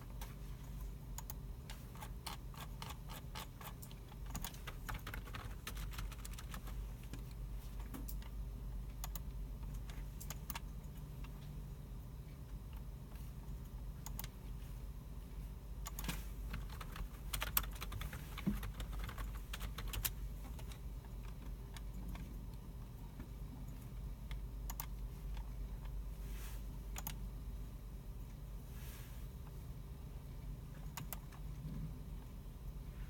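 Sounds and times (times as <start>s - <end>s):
low room hum: 0.0s - 33.0s
keyboard typing: 1.2s - 8.4s, 9.0s - 11.4s, 13.5s - 14.4s, 15.8s - 22.6s, 23.6s - 25.9s, 26.9s - 27.2s, 30.9s - 31.4s.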